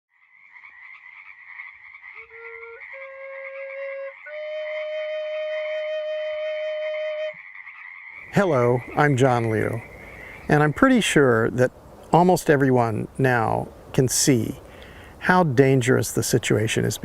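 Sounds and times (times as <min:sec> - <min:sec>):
frogs calling: 0:00.1 - 0:05.9, 0:07.1 - 0:11.8
flute-like wind instrument: 0:02.3 - 0:07.4.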